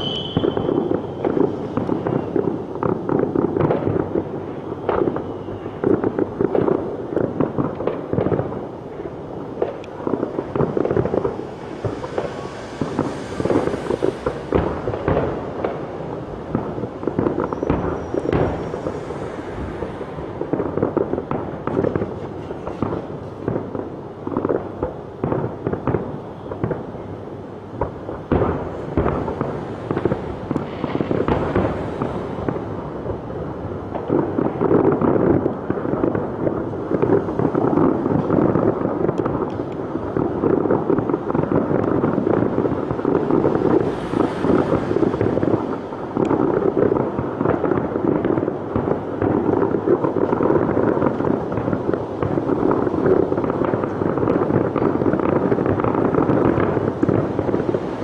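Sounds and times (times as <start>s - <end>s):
high firework whistle: 0.0s - 2.6s, 4.5s - 6.0s, 11.1s - 15.8s, 17.0s - 20.6s
fireworks bangs and crackles: 0.0s - 58.0s.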